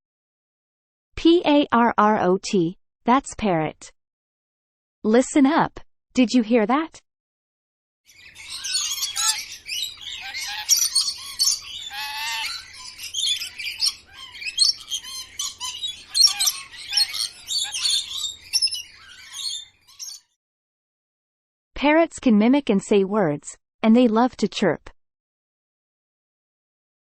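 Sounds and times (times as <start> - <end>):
parrot chirping and squawking: 8.1 - 20.3
parrot warbling call: 8.2 - 20.2.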